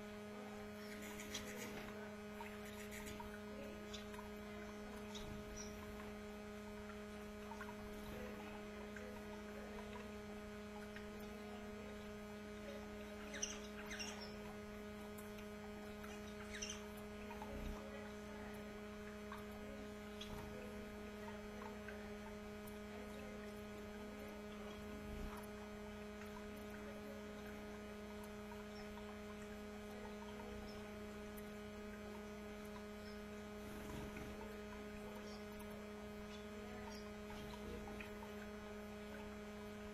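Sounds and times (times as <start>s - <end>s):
electrical hum: 0.0s - 39.9s
faint canary chirps: 0.4s - 10.2s, 10.8s - 39.4s.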